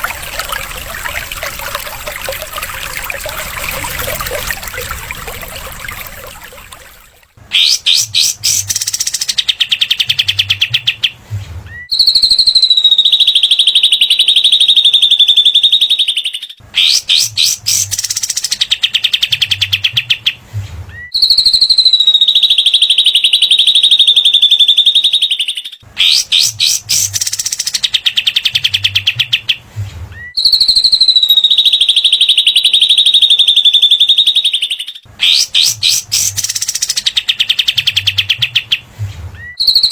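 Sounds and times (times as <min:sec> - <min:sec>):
songbird rattling trill: 0:07.6 - 0:09.4, 0:26.0 - 0:27.8, 0:35.2 - 0:37.4.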